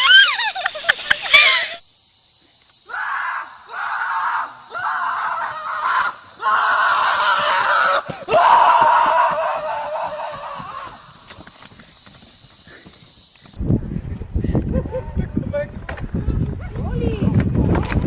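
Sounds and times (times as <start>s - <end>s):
animal screaming: 2.9s - 11.1s.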